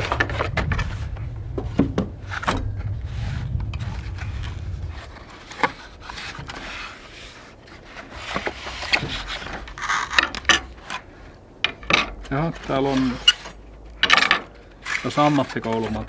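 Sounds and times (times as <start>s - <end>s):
low rumble: 0.0s - 14.0s
rubbing and scraping: 0.0s - 16.0s
skewer parts knocking and clacking: 8.0s - 16.0s.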